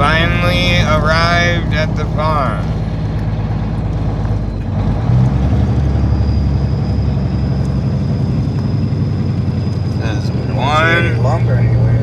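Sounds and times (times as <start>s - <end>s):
faint high whine: 0.0s - 2.9s, 6.0s - 12.0s
truck engine running: 0.0s - 12.0s.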